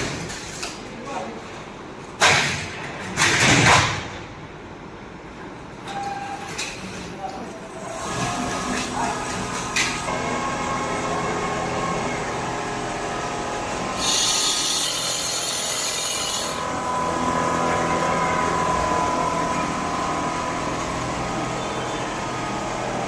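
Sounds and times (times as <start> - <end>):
quilting machine humming: 7.6 - 23.0
loud hiss: 13.7 - 16.8.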